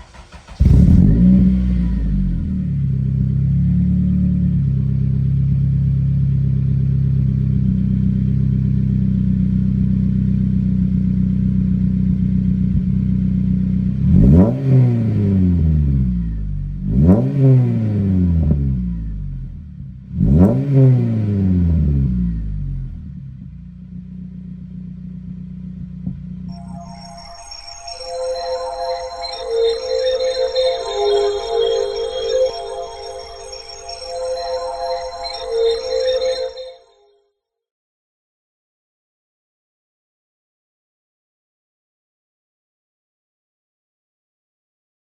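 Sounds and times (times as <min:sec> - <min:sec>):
car engine revs blipped: 0:00.0 - 0:08.5, 0:13.8 - 0:23.9
car engine starting and idling: 0:00.0 - 0:26.9.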